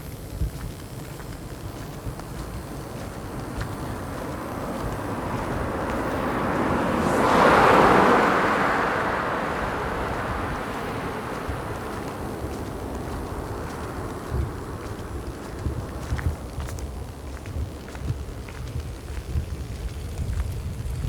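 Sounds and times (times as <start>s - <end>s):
car driving past: 2.6s - 16.9s.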